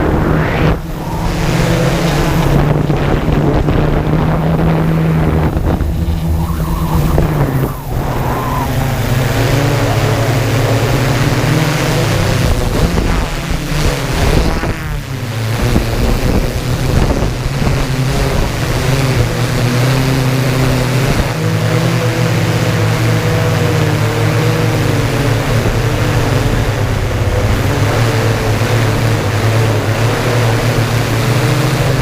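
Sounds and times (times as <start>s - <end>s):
wind buffeting microphone: 0.0s - 21.9s, 23.0s - 32.0s
drone propellers humming: 0.0s - 32.0s.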